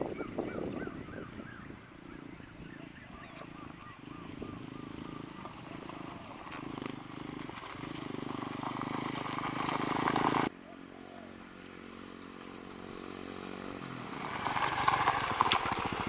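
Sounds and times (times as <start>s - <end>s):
short chirping calls: 0.0s - 6.3s
motorcycle engine idling: 0.0s - 16.0s.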